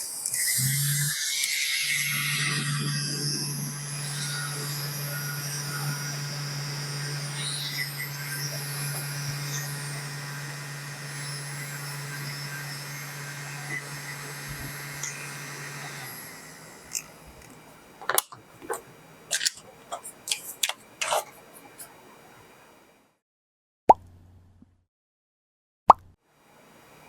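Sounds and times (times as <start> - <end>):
air conditioner fan humming: 2.4 - 22.9
sharp clicks and knocks: 16.9 - 21.3.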